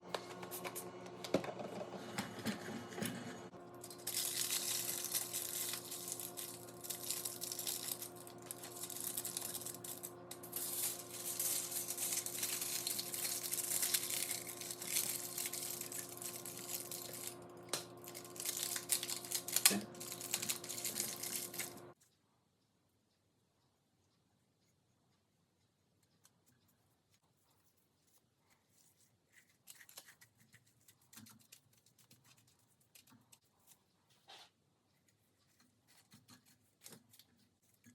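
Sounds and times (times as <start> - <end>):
steady low hum: 0.0 - 22.0
hands rustling craft materials: 3.7 - 22.0.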